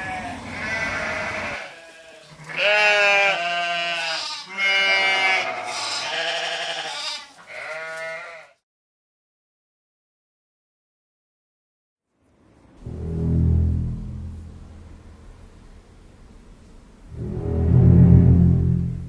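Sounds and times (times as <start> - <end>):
animal bleating cries: 0.0 - 8.6.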